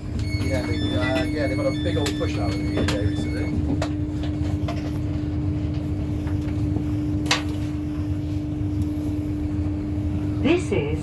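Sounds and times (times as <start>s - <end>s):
train carriage hum and rumble: 0.0s - 11.0s.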